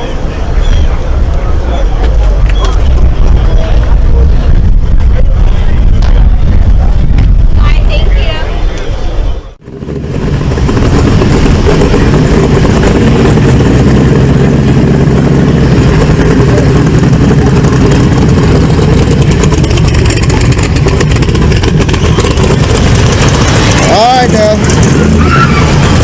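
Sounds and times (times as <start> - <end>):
vehicle engine running loudly: 9.2 - 26.0.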